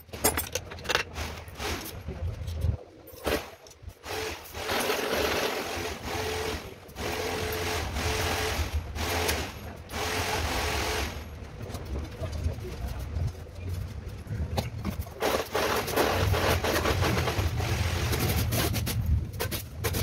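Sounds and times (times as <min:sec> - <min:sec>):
small motorized tool running: 0:04.0 - 0:11.2.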